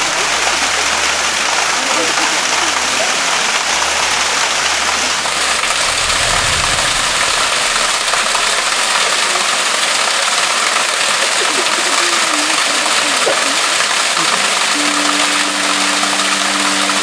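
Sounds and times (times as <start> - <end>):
water splashing over rocks: 0.0 - 17.0
low rumble: 4.8 - 9.4.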